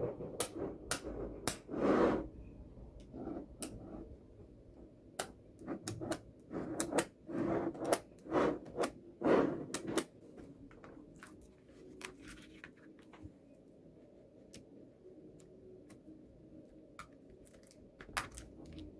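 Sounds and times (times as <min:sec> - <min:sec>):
magnetic balls rolling and scraping: 0:00.0 - 0:11.4.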